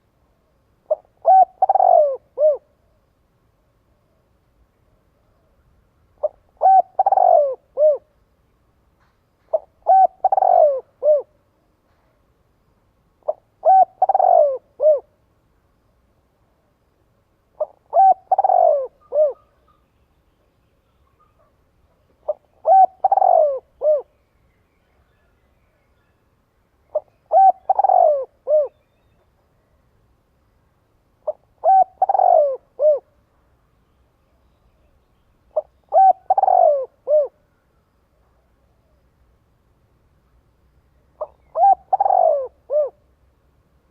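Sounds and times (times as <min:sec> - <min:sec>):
dove cooing: 0:00.8 - 0:02.9, 0:06.2 - 0:08.1, 0:09.5 - 0:11.4, 0:13.2 - 0:15.1, 0:17.6 - 0:19.8, 0:21.0 - 0:24.1, 0:26.9 - 0:28.8, 0:31.2 - 0:33.1, 0:35.5 - 0:37.5, 0:41.2 - 0:43.1.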